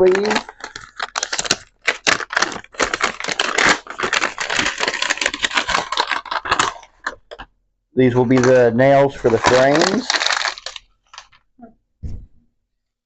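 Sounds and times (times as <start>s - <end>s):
nails rattling in plastic bag: 0.0s - 7.5s, 8.2s - 11.4s.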